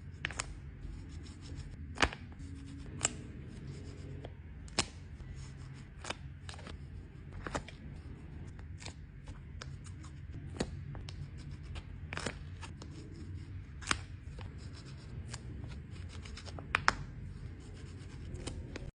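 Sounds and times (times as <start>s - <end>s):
paper stickers crackling and rustling: 0.0s - 18.9s.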